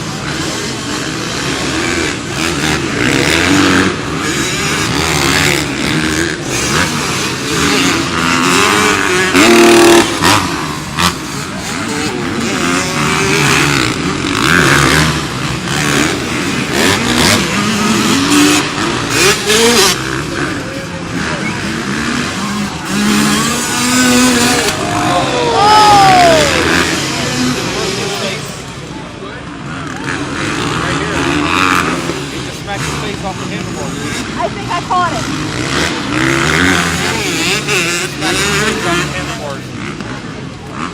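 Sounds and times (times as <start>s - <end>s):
racing motorcycle engines revving: 0.0s - 40.9s.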